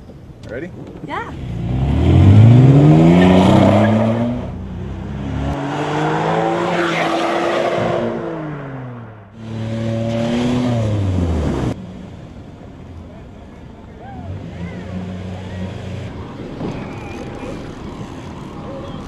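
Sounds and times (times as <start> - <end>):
car engine revving: 1.4 - 12.2.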